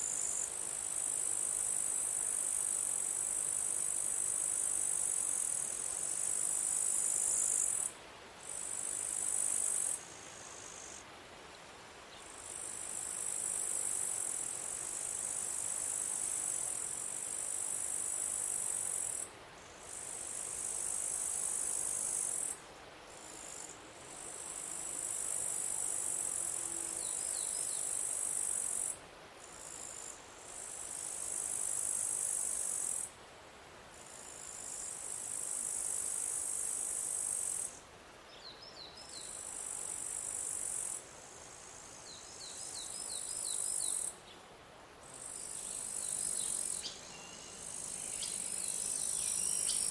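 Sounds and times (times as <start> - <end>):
insect shrill buzzing: 45.2 - 49.9.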